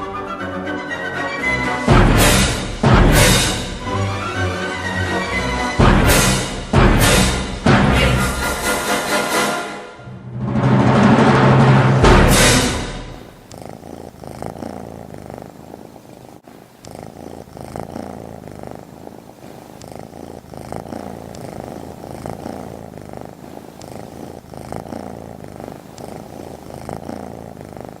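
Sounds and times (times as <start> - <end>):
cat purring: 1.8 - 9.0, 10.9 - 28.0.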